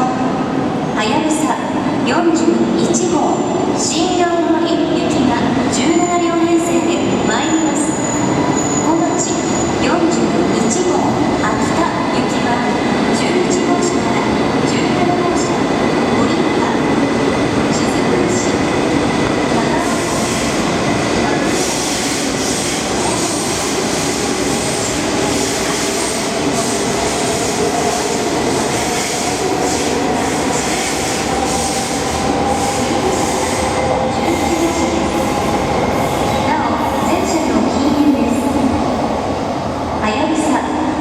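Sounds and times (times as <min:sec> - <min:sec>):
train wheels rumbling: 0:10.2 - 0:40.5.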